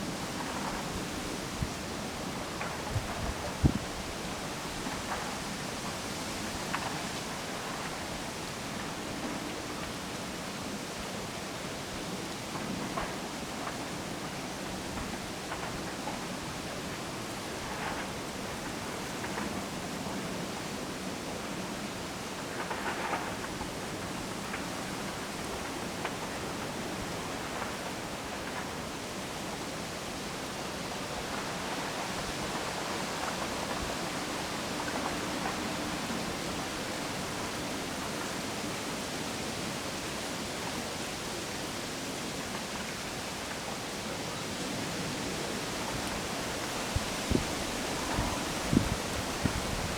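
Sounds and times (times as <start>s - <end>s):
strong wind through trees: 0.0s - 49.9s.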